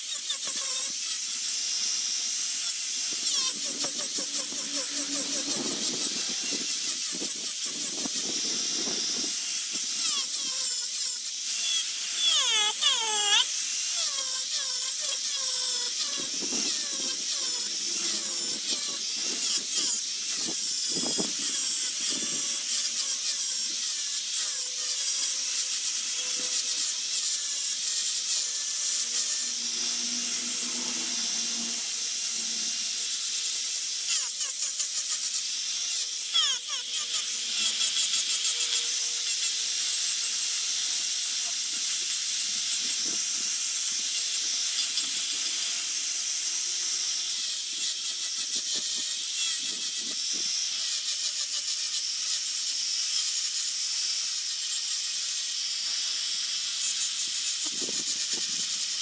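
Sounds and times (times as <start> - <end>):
rotary tool carving wood: 0.0 - 59.0.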